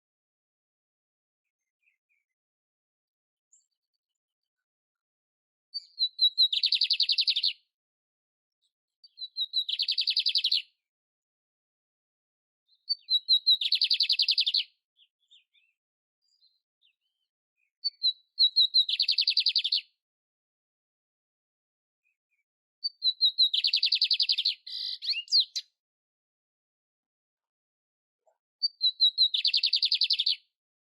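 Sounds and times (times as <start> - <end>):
canary singing trills: 5.8 - 7.6, 9.1 - 10.7, 12.7 - 19.9, 22.8 - 25.8, 28.6 - 30.5.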